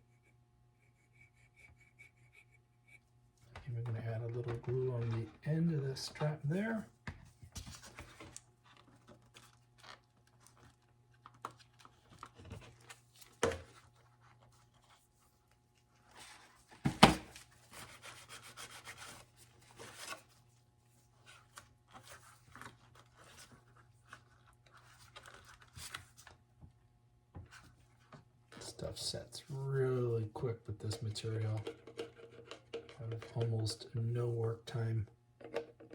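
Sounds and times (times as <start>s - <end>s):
low steady hum: 0.0s - 18.2s.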